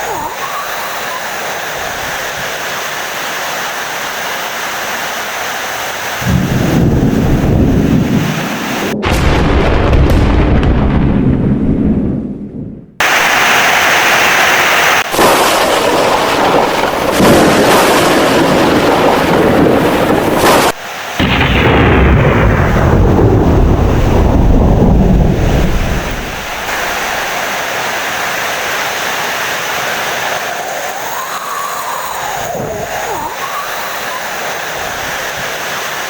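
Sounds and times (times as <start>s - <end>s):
heavy rain: 0.0s - 10.6s, 13.0s - 36.0s
rolling thunder: 6.2s - 13.4s, 15.0s - 27.3s.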